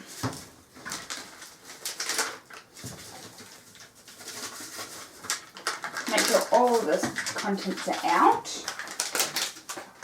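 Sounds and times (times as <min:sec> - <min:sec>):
plastic packet rustling: 0:00.0 - 0:10.0.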